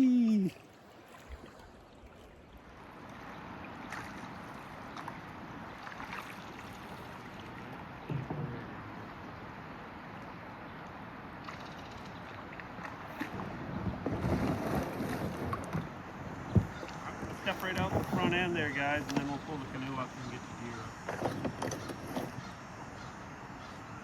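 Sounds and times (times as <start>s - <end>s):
water rushing around hull: 0.0s - 24.0s
faint paddle knocks or splashes: 0.6s - 9.2s, 11.4s - 19.8s, 21.0s - 22.5s.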